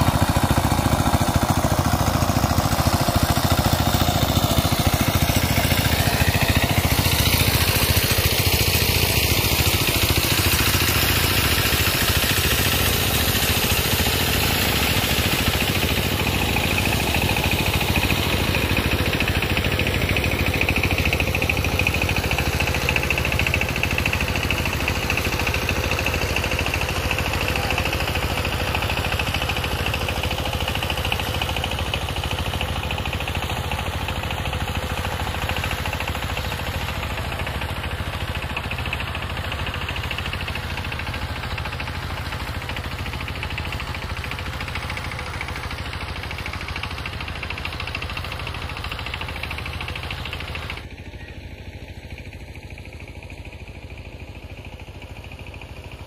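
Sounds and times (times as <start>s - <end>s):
motor engine running: 0.0s - 56.0s.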